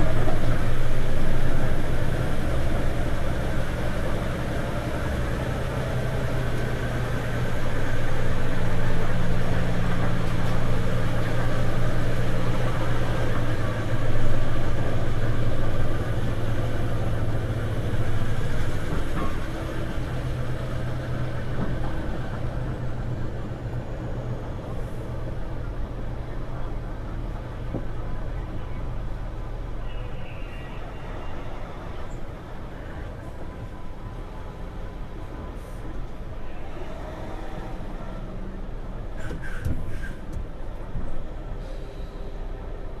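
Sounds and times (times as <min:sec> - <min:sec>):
ferry engines humming: 0:00.0 - 0:43.0.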